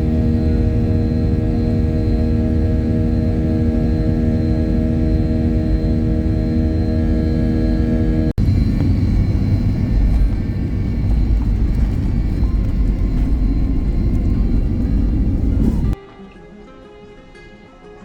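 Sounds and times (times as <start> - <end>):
jet airliner engine rumble: 0.0 - 16.0
plucked-string music: 15.9 - 18.0.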